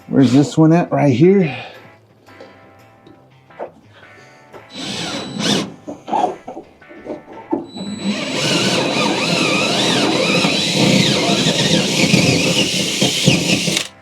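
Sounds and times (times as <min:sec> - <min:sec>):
power drill boring: 0:04.7 - 0:06.3, 0:07.6 - 0:14.0.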